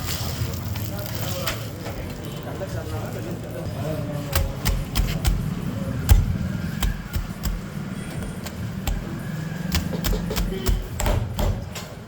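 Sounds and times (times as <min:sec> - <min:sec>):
steady low hum: 0:04.3 - 0:11.4
sharp knocks and thuds: 0:04.3 - 0:12.0.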